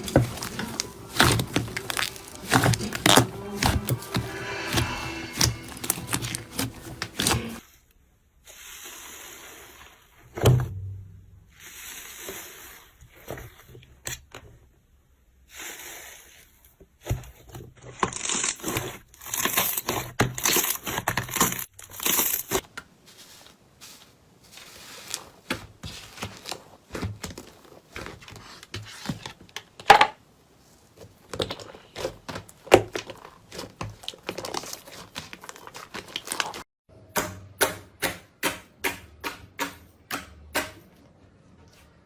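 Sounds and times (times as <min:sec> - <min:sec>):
slime crackling and squelching: 0:00.0 - 0:07.8, 0:15.5 - 0:29.3, 0:30.8 - 0:36.7.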